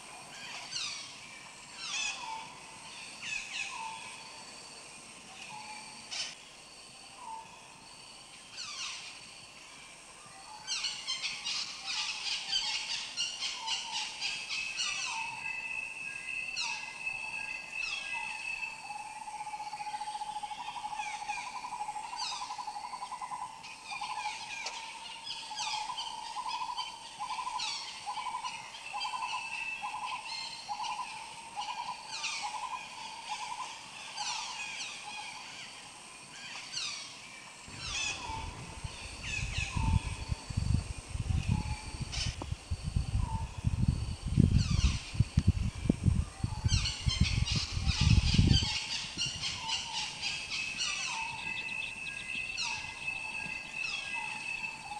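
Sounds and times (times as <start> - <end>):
birds chirping: 37.7 - 40.8, 44.4 - 54.9.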